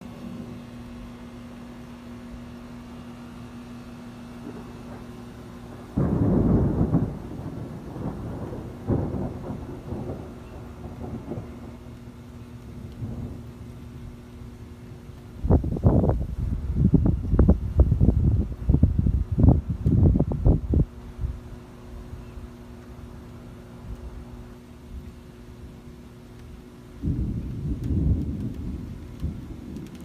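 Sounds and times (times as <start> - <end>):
thunder clap and rumble: 4.4 - 21.4, 27.0 - 30.0.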